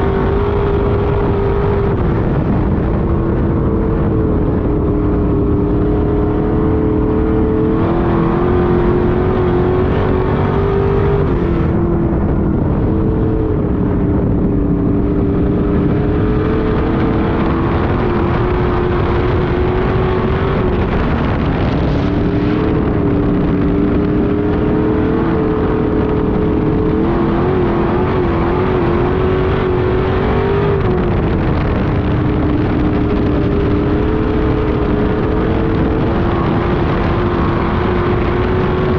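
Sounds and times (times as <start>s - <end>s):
race car engine at high revs: 0.0s - 38.9s.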